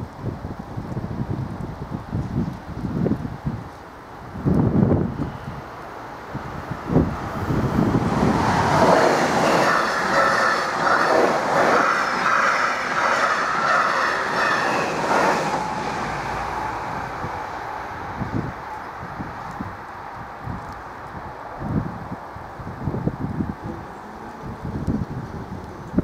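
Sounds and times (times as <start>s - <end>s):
train wheels rumbling on rails: 6.3s - 22.1s.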